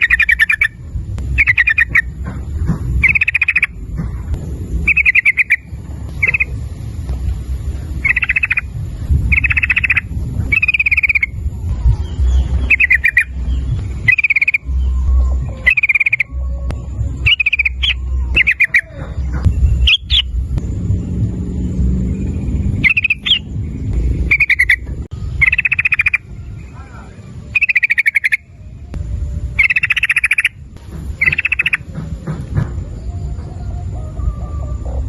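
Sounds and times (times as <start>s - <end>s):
bird chattering rattles: 0.0s - 0.8s, 1.4s - 6.7s, 7.9s - 11.4s, 12.6s - 14.7s, 15.6s - 16.3s, 17.3s - 20.3s, 22.8s - 23.5s, 24.3s - 24.8s, 25.4s - 26.2s, 27.5s - 28.4s, 29.6s - 32.0s
low rumble: 0.0s - 35.0s.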